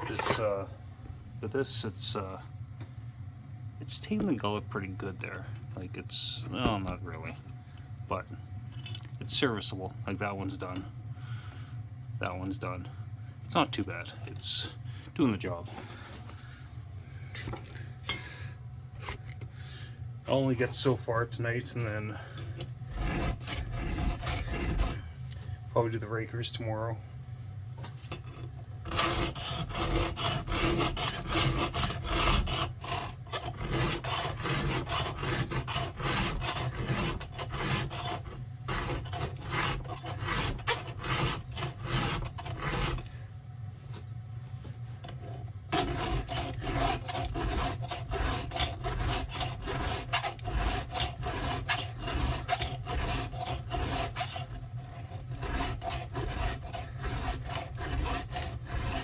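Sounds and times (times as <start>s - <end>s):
file rasping on chain teeth: 0.0s - 0.6s, 21.8s - 25.1s, 28.2s - 43.1s, 45.2s - 59.0s.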